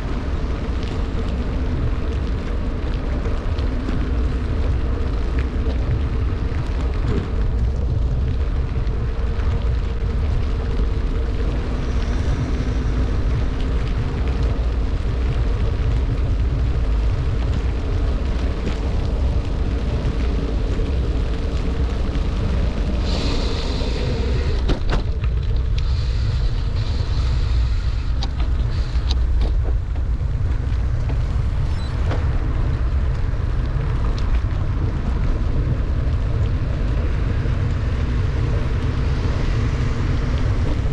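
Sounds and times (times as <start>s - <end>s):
wind buffeting microphone: 0.0s - 40.9s
bright hiss: 23.0s - 24.6s.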